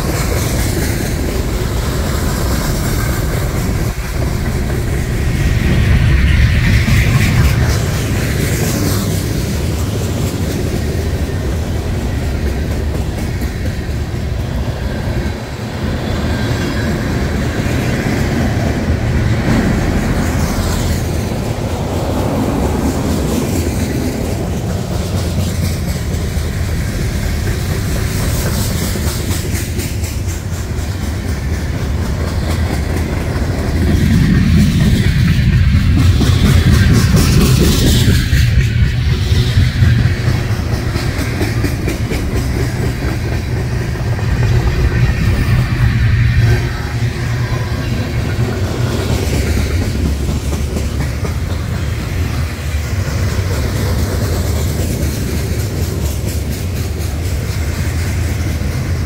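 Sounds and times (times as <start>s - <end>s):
train wheels rumbling on rails: 0.0s - 59.0s
wheels clicking over rail joints: 0.0s - 59.0s.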